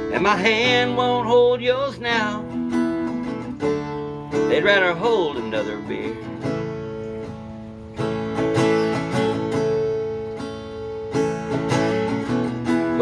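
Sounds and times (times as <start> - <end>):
acoustic guitar strumming: 0.0 - 13.0
person singing: 4.4 - 6.4.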